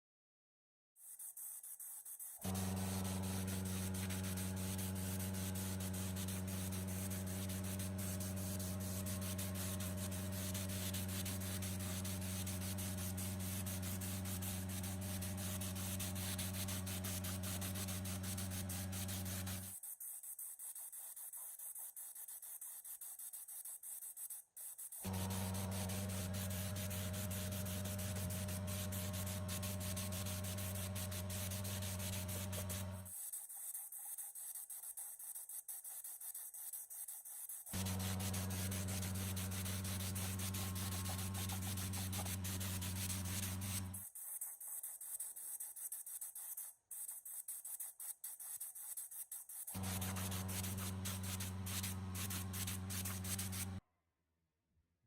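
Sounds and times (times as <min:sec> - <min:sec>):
power tool grinding metal: 0:02.4 - 0:19.7, 0:25.1 - 0:33.1, 0:37.8 - 0:44.0, 0:49.7 - 0:53.8.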